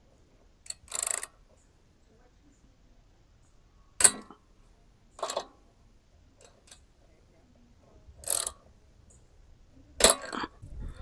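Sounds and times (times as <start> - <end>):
rasping metal clicks: 0.6 - 1.3, 4.0 - 4.4, 5.2 - 5.5, 8.2 - 8.6, 10.0 - 11.0.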